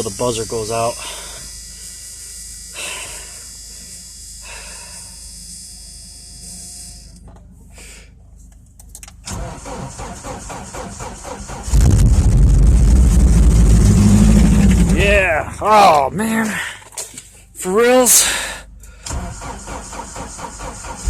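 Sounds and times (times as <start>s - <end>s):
car starter cranking: 8.9s - 15.0s, 18.9s - 21.0s
car engine running loud: 10.9s - 16.1s.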